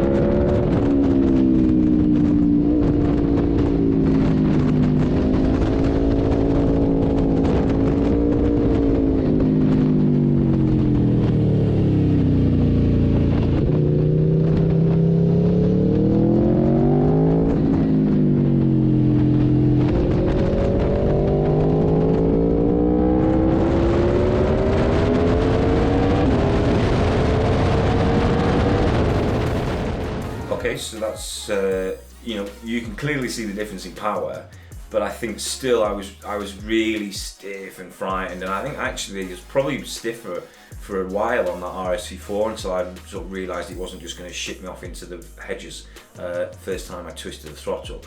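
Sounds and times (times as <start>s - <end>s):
motorcycle engine revving: 0.0s - 36.7s.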